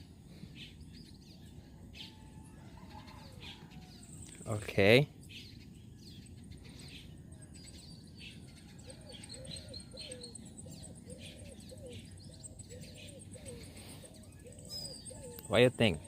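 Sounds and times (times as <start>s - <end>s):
birds chirping: 0.0s - 16.0s
low arched bird call: 8.3s - 16.0s.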